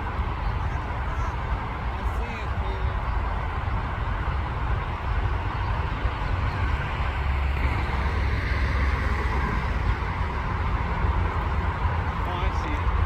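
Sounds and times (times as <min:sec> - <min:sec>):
freight train rumbling past: 0:05.7 - 0:13.0.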